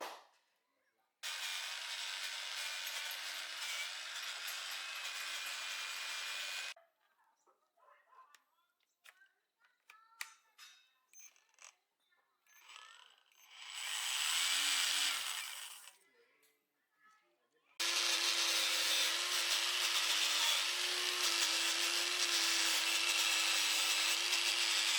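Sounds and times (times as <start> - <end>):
small power tool whining: 1.2 - 6.8, 12.5 - 15.9, 17.8 - 24.9.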